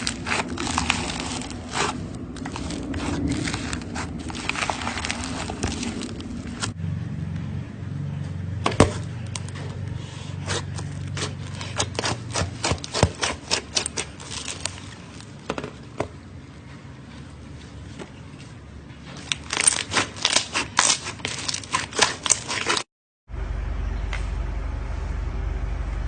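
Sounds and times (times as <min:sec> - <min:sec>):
low steady hum: 0:00.0 - 0:22.4, 0:23.3 - 0:26.0.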